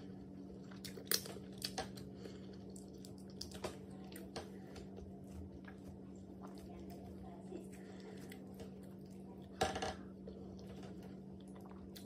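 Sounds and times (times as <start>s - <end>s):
chewing and lip smacking: 0.4s - 7.0s, 10.2s - 12.0s.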